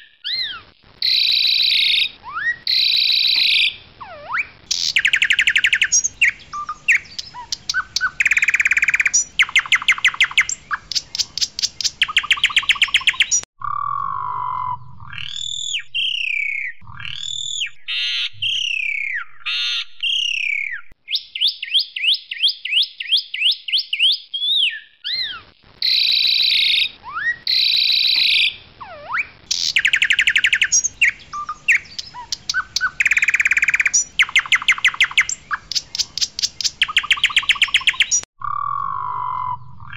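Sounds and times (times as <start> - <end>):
starling singing varied song: 1.1 - 13.5, 26.2 - 38.3.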